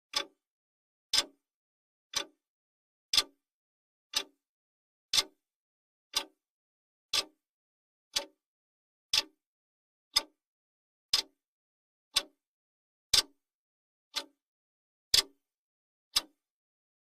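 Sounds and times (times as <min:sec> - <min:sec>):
clock ticking: 0:00.1 - 0:00.3, 0:02.1 - 0:02.3, 0:04.1 - 0:04.4, 0:06.1 - 0:06.4, 0:07.1 - 0:07.3.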